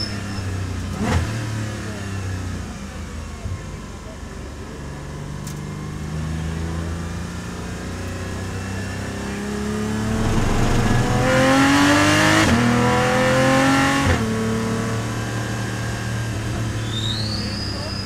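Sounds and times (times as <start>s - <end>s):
car engine accelerating: 9.8s - 13.8s.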